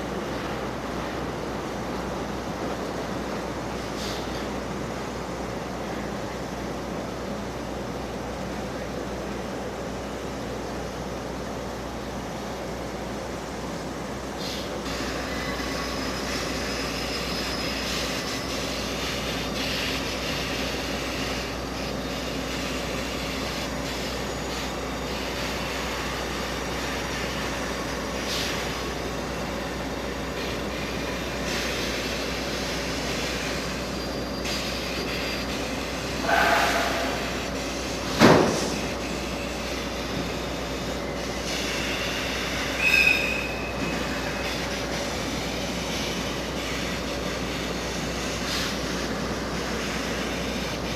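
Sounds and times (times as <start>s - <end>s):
train mechanical hum: 0.0s - 50.9s
high wheel squeals: 14.5s - 19.8s, 33.1s - 37.6s, 39.0s - 44.7s.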